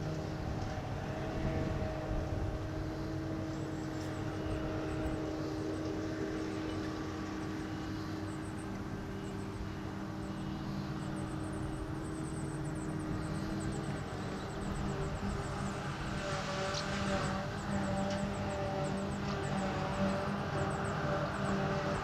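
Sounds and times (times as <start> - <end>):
diesel engines running: 0.0 - 22.0
steady whine: 0.0 - 22.0.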